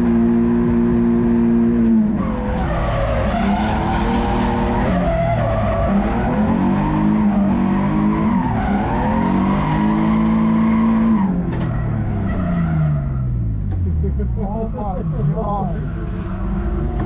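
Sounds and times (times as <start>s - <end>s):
car engine revving: 0.0s - 17.0s
tyres squealing and skidding: 2.2s - 13.5s, 14.7s - 17.0s.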